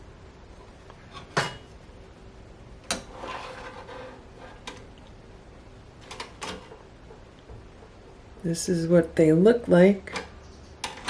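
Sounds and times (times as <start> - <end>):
metal rack rubbing: 2.9 - 4.8.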